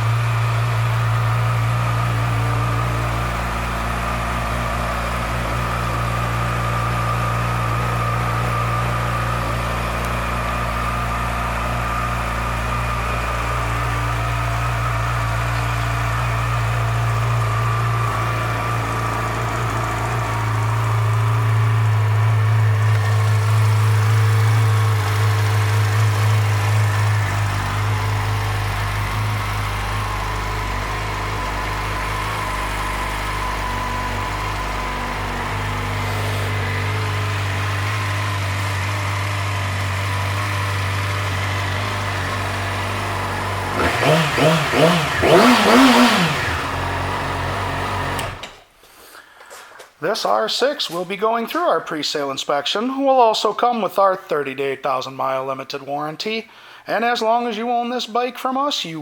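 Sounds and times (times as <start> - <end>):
motorcycle engine idling: 0.0 - 48.5.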